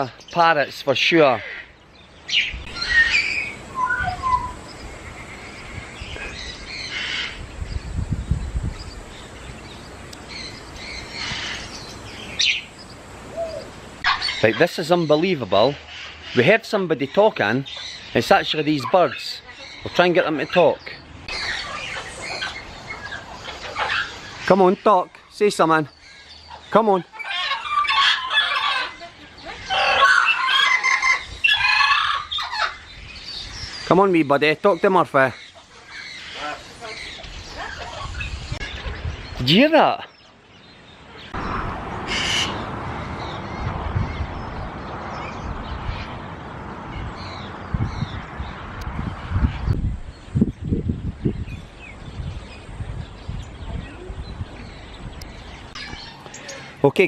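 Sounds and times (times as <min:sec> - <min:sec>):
small birds chirping: 0:00.0 - 0:57.0
parrots squawking: 0:01.1 - 0:07.4, 0:10.2 - 0:16.8, 0:21.3 - 0:24.9, 0:26.0 - 0:32.9, 0:35.3 - 0:39.1, 0:41.2 - 0:43.6.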